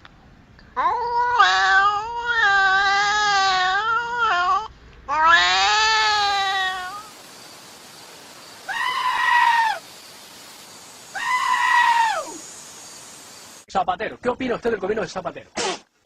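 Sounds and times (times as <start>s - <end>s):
pitched animal calls: 0.8s - 7.2s, 8.5s - 9.9s, 11.1s - 12.4s
wavering animal cry: 0.8s - 7.2s, 8.5s - 9.9s, 11.1s - 12.4s.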